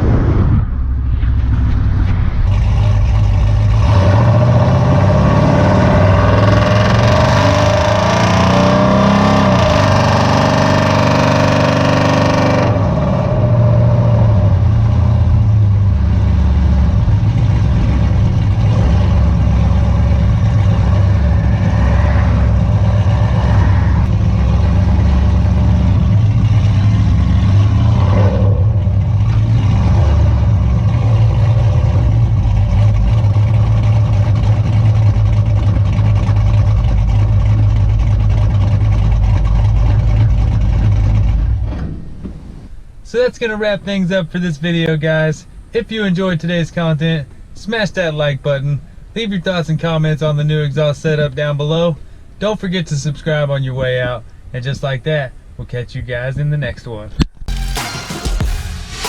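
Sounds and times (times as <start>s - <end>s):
car engine running loud: 0.0s - 42.9s.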